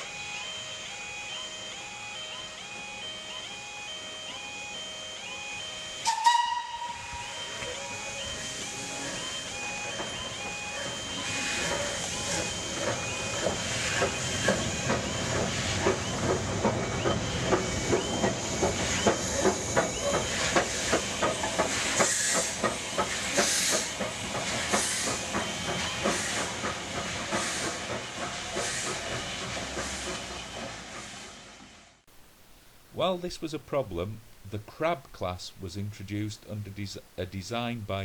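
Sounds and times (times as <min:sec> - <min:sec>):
steam hiss: 0:06.2 - 0:31.8
wheels clattering on rail: 0:09.0 - 0:31.4.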